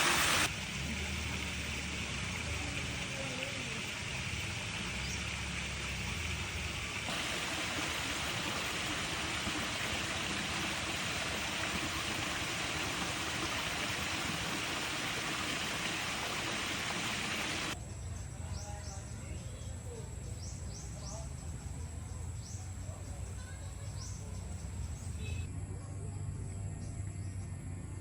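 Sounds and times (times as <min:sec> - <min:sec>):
rushing water: 0:00.0 - 0:17.8.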